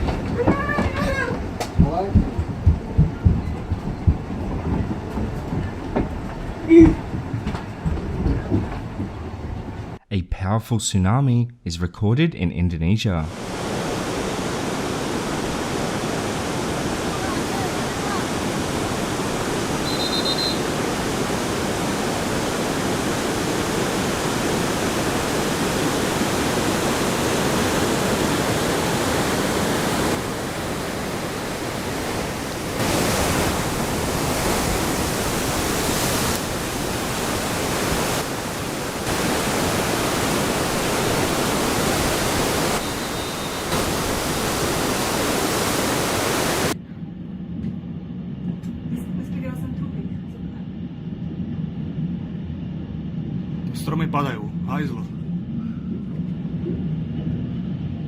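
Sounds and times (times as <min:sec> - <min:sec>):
water rushing roar: 0:00.0 - 0:10.0, 0:13.2 - 0:46.8.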